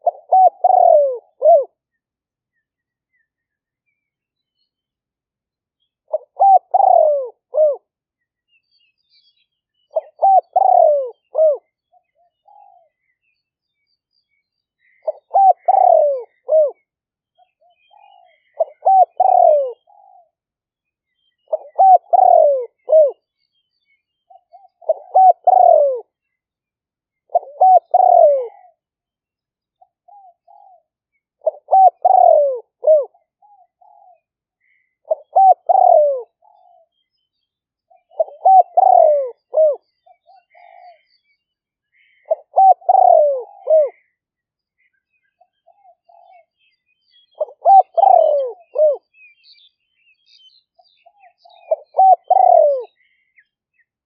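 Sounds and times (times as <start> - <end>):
dove cooing: 0.0 - 1.8, 6.1 - 7.9, 9.9 - 13.0, 14.8 - 16.8, 17.4 - 20.4, 21.4 - 23.2, 24.3 - 26.2, 27.3 - 28.8, 29.8 - 37.0, 37.9 - 41.1, 42.0 - 44.2, 45.4 - 46.5, 47.3 - 49.2, 51.0 - 53.4
small birds chirping: 0.0 - 54.0.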